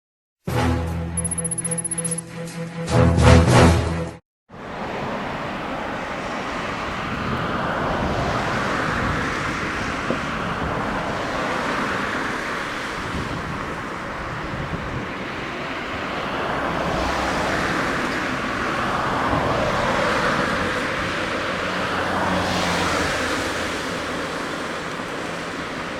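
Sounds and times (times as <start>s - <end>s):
jet engines rushing: 4.6s - 25.9s
wind on microphone: 4.8s - 25.9s.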